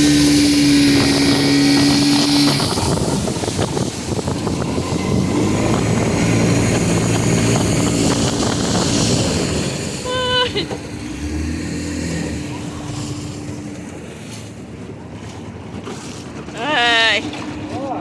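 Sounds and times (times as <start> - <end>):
motorboat engine running: 0.0 - 18.0
engine knocks: 0.7 - 16.5.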